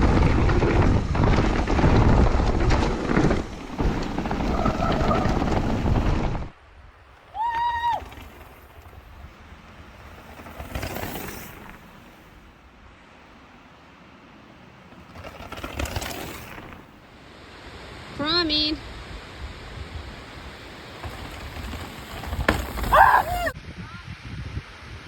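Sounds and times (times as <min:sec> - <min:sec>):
wind buffeting microphone: 0:00.0 - 0:10.4, 0:19.2 - 0:25.0.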